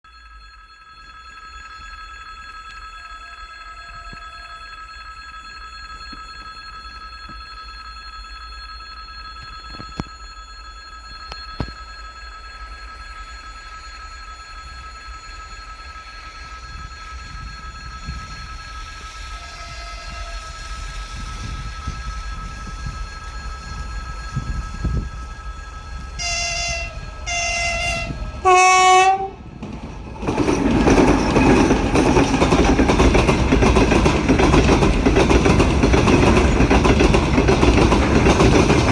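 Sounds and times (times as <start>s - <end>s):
high-pitched ringing tones: 0.0s - 38.9s
diesel train rumble: 16.1s - 38.9s.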